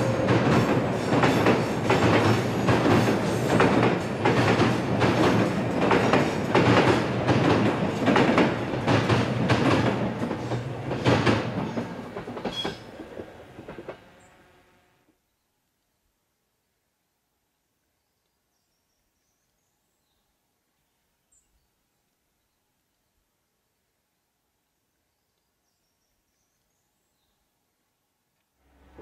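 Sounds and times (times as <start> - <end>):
train wheels clickety-clack: 0.0 - 14.3
train rumble on bridge: 0.0 - 14.8.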